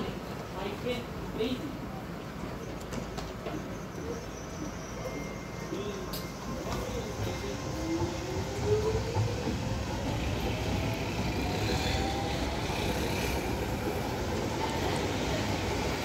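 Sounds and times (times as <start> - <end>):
wheels rumbling on rail: 0.0 - 16.0
train motor whine: 4.6 - 16.0.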